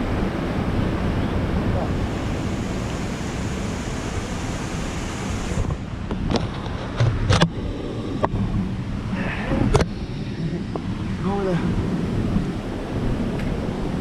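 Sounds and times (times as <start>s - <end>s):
water rushing: 0.0s - 6.7s.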